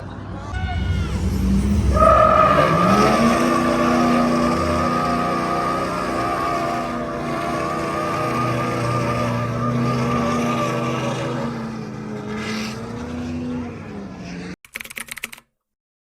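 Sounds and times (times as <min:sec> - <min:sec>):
tyre squeal: 0:00.8 - 0:13.0
tires skidding: 0:00.8 - 0:14.6
car engine revving high: 0:01.0 - 0:14.6.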